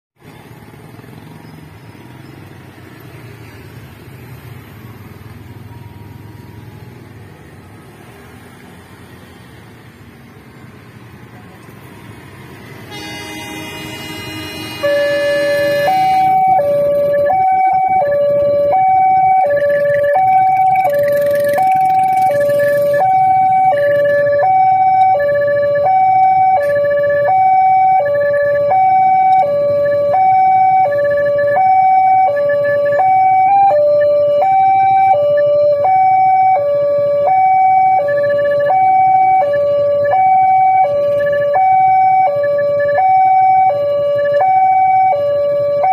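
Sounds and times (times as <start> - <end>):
two-tone crossing alarm: 12.8 - 45.9
steady buzzing tone: 12.9 - 16.7.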